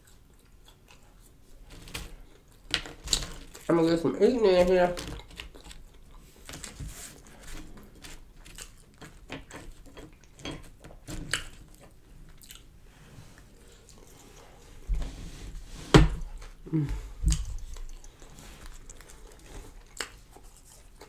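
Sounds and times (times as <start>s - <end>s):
crunchy chewing and biting: 0.0s - 12.8s, 17.3s - 21.0s.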